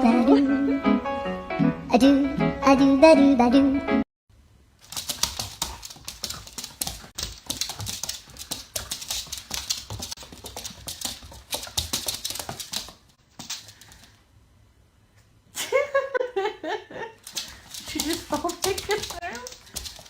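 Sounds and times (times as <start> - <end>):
music: 0.0 - 4.0
rapid clicking and tapping: 4.8 - 14.1, 17.2 - 20.0.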